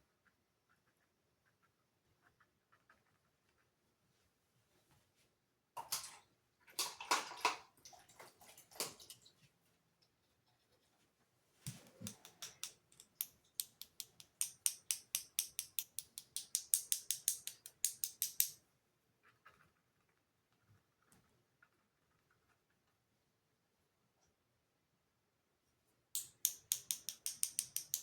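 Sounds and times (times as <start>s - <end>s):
paintbrush dabbing taps: 11.7s - 18.5s, 26.2s - 28.0s.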